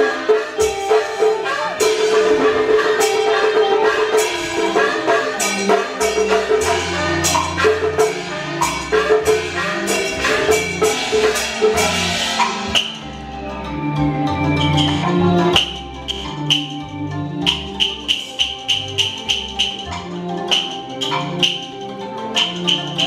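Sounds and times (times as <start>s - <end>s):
instrumental ensemble melody: 0.0s - 23.0s
sharp percussion strikes: 0.0s - 23.0s.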